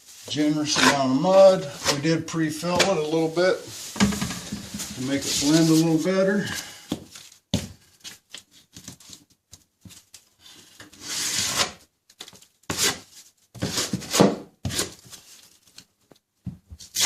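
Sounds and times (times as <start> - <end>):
drywall knife scraping compound: 0.2 - 6.1, 10.9 - 11.8, 12.7 - 15.0.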